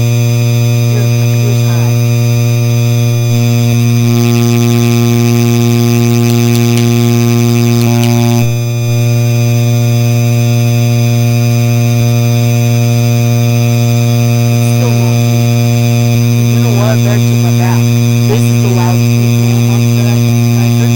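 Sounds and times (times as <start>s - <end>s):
ceiling fan motor buzzing hum: 0.0s - 20.9s.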